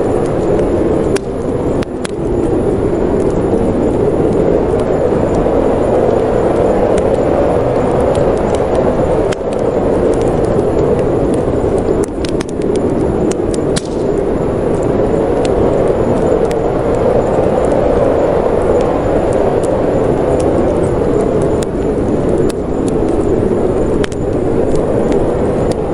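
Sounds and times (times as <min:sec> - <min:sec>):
fire popping: 0:00.0 - 0:25.9
wind rushing: 0:00.0 - 0:25.9
wood fire crackling: 0:00.0 - 0:25.9.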